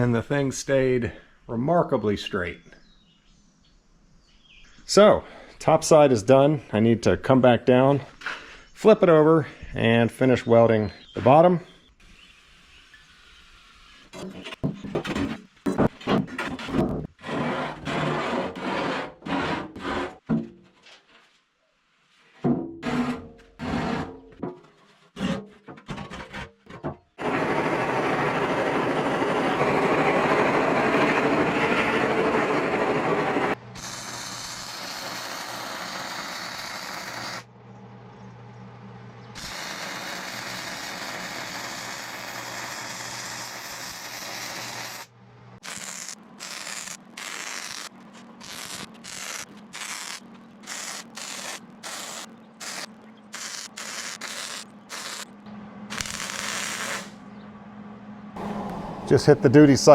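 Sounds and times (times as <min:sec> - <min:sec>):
welding arc crackling and hissing: 0:32.7 - 0:37.5, 0:39.4 - 0:55.3, 0:55.9 - 0:57.2.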